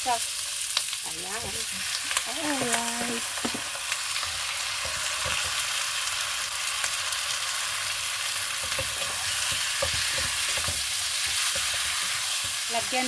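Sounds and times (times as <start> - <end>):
food sizzling in a frying pan: 0.0 - 13.0
utensil scraping and knocking pan: 8.6 - 12.6.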